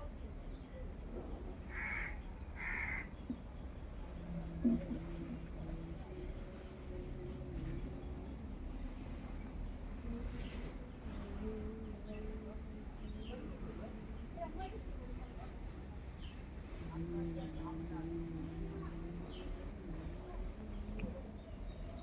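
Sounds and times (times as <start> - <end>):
insects chirring: 0.0 - 22.0
low background rumble: 0.0 - 22.0
crow cawing: 1.7 - 3.1.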